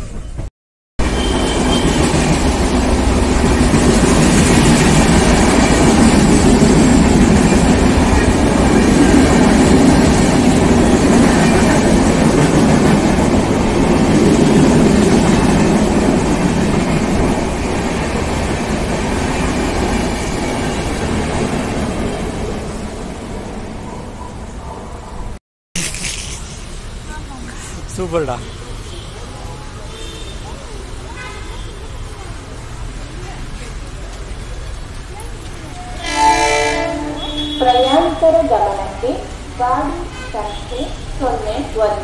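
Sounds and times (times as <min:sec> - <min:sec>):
train wheels rumbling on rail: 0:00.0 - 0:24.8.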